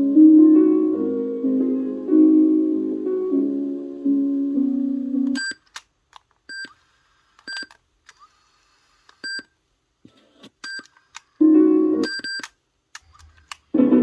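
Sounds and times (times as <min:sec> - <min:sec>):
piano music: 0:00.0 - 0:05.4, 0:11.4 - 0:12.1, 0:13.8 - 0:14.0.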